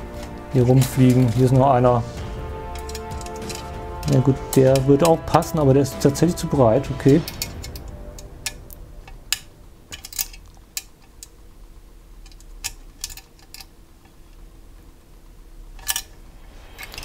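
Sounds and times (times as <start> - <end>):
allen key clicking on metal: 2.7 - 3.8, 7.2 - 11.3.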